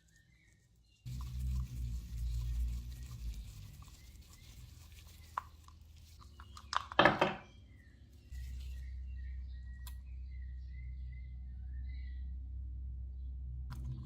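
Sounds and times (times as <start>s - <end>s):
low steady hum: 1.1s - 6.8s, 7.4s - 14.0s.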